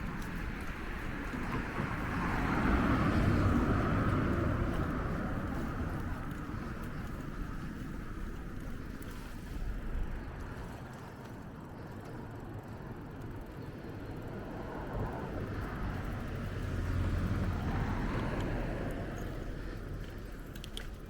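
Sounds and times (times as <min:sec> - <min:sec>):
vehicle passing by: 0:00.0 - 0:09.4, 0:14.4 - 0:21.0.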